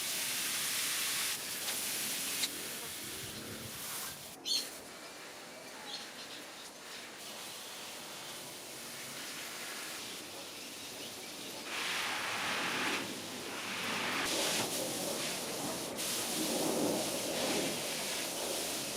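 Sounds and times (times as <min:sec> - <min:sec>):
spray-like hiss: 0:00.0 - 0:05.4, 0:06.8 - 0:18.9
steady outdoor hiss: 0:00.0 - 0:18.9
bird chirps: 0:04.4 - 0:04.7.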